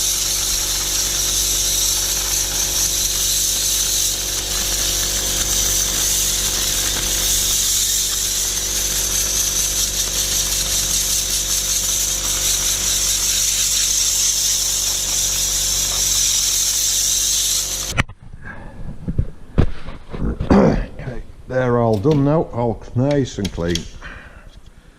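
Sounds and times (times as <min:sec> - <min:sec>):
compressed air hissing: 0:00.0 - 0:18.0
steady hum: 0:00.0 - 0:24.9.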